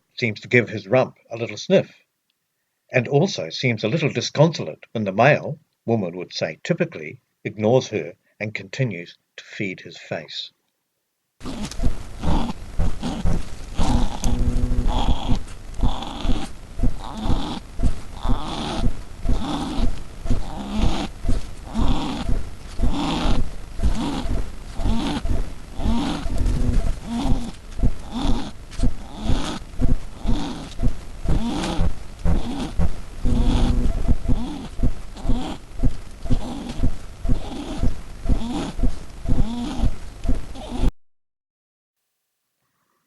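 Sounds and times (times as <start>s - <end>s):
kiwi grunting and wheezing: 18.2s - 35.6s, 36.3s - 40.9s.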